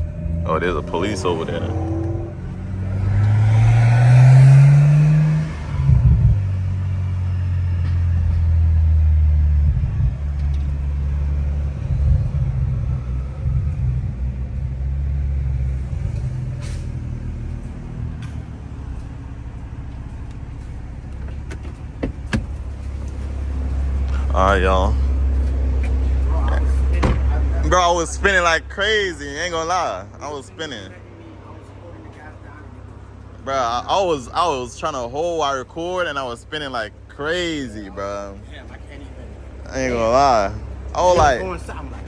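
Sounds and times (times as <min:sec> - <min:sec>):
car engine accelerating hard: 0:00.0 - 0:20.4
low engine drone: 0:00.0 - 0:42.0.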